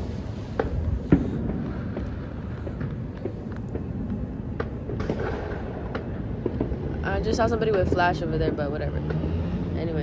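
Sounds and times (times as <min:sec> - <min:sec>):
distant firework bangs: 0:00.0 - 0:10.0
steady low rumble: 0:00.0 - 0:10.0.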